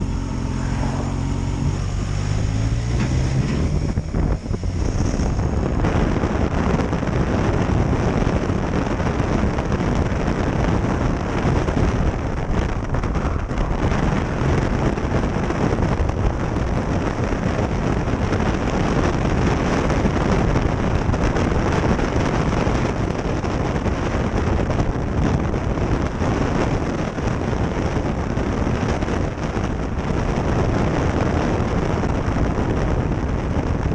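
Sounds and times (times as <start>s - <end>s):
motorcycle engine pulling away: 0.0s - 6.5s
wind rush on microphone: 0.0s - 33.9s.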